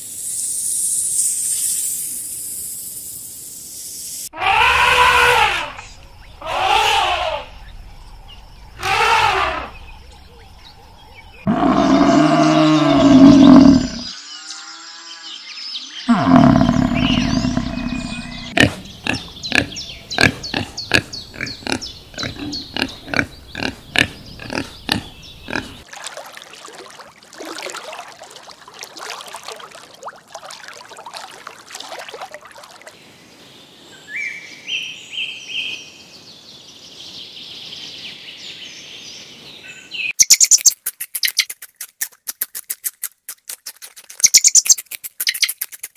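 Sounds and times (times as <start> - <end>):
elephants calling: 6.4 - 7.5, 8.8 - 9.7
quiet animal sounds: 16.1 - 25.8.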